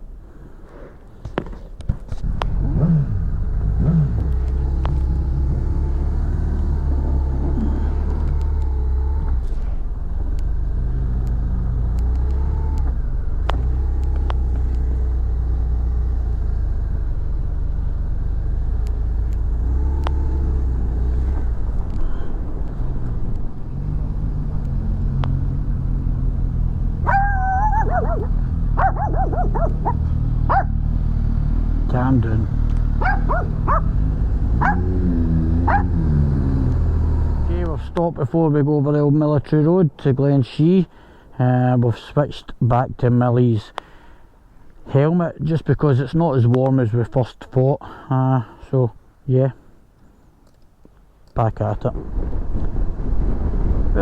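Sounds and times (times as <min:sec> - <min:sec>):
road noise: 0:00.0 - 0:54.0
motorcycle engine revving: 0:02.2 - 0:38.0
dog barking short high calls: 0:27.1 - 0:30.8, 0:33.0 - 0:33.9, 0:34.6 - 0:34.9.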